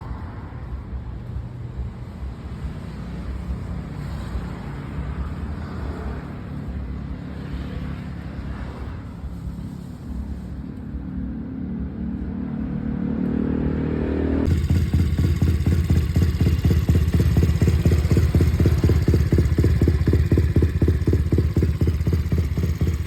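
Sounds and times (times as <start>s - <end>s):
mini bike engine running: 14.5s - 23.0s.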